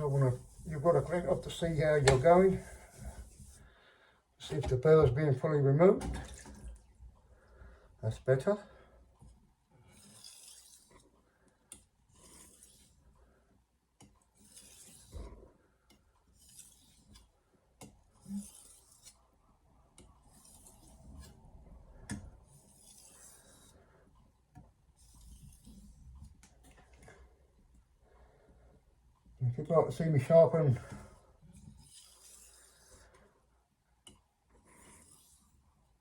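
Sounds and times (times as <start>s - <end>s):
knife sharpening on whetstone: 12.2s - 12.9s, 14.4s - 15.1s, 16.4s - 17.2s, 18.2s - 19.2s, 22.5s - 23.7s, 31.8s - 33.0s, 34.8s - 35.5s.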